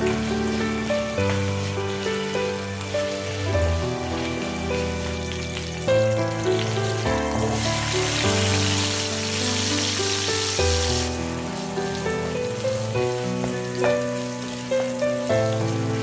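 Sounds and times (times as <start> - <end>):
background music with held notes: 0.0 - 16.0
food frying in a pan: 0.0 - 16.0.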